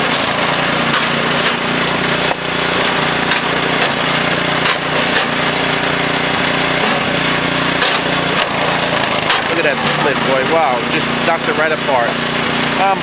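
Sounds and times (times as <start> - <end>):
log splitter engine running: 0.0 - 13.0.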